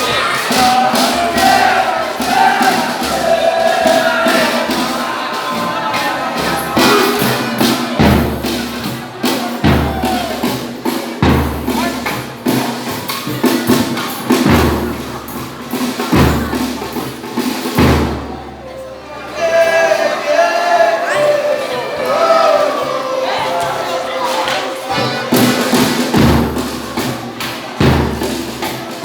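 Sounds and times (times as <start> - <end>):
voices singing: 0.0 - 10.8, 18.6 - 29.0
deep drum beats: 0.0 - 18.7, 22.0 - 29.0.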